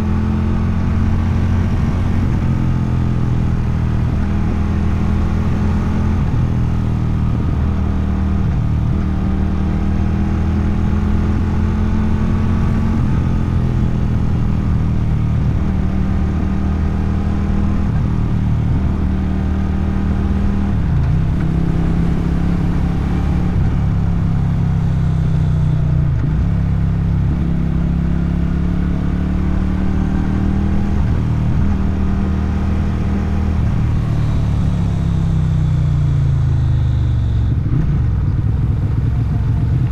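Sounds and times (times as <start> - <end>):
motorcycle engine shifting gears: 0.0 - 39.9.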